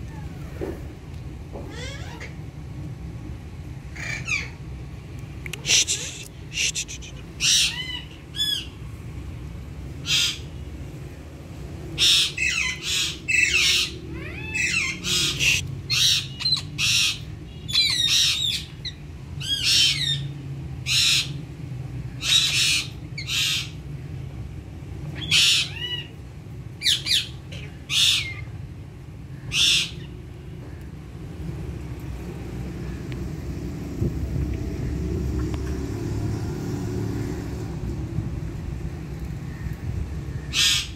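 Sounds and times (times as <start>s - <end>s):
parrots squawking: 1.7s - 2.4s, 3.9s - 4.6s, 5.6s - 8.7s, 10.0s - 10.5s, 12.0s - 20.3s, 22.2s - 23.8s, 25.2s - 26.2s, 26.8s - 28.5s, 29.4s - 30.2s, 40.3s - 40.9s.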